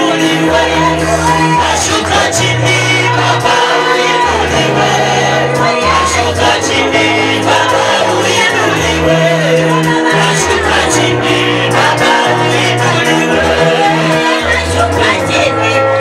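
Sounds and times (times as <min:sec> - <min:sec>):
band playing with bass line: 0:00.0 - 0:16.0
group singing gospel music: 0:00.0 - 0:16.0.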